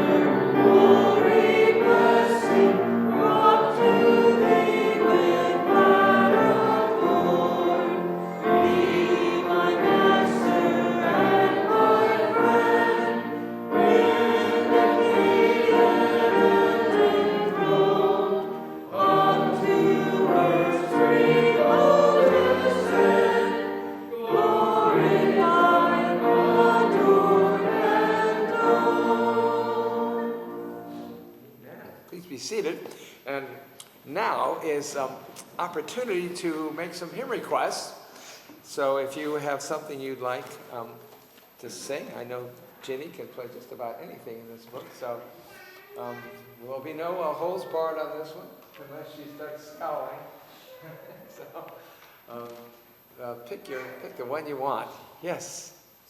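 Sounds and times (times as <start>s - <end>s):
congregation singing a hymn: 0.0s - 31.4s
instrumental accompaniment: 0.0s - 31.4s.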